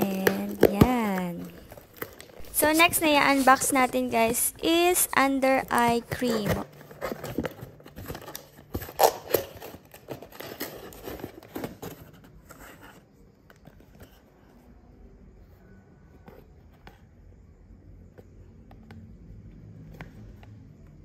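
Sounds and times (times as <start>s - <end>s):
packaging crinkling and clicking: 0.0s - 4.4s, 5.6s - 12.1s.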